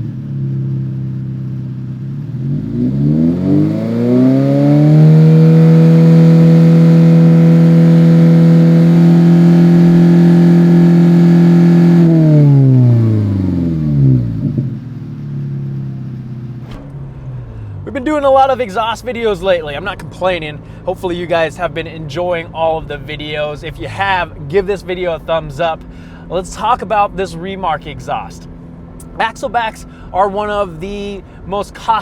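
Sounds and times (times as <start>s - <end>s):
loud car exhaust revving: 0.0s - 17.8s.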